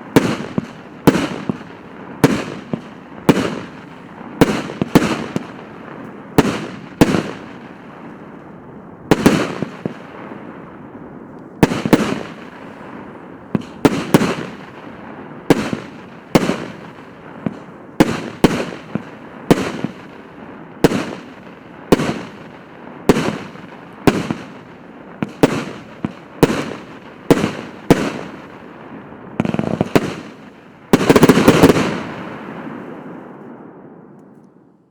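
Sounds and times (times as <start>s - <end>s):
firework cake shots bursting: 11.6s - 14.8s, 29.4s - 32.1s.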